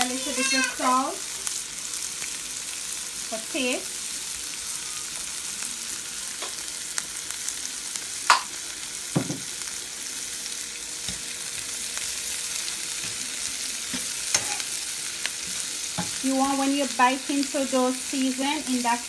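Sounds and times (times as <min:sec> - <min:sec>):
vegetables sizzling in oil: 0:00.0 - 0:19.0
vegetables being stirred: 0:11.0 - 0:19.0.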